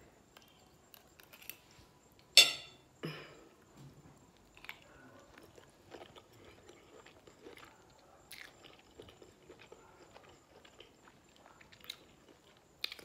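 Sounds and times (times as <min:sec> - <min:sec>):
person chewing food: 0:04.4 - 0:13.0.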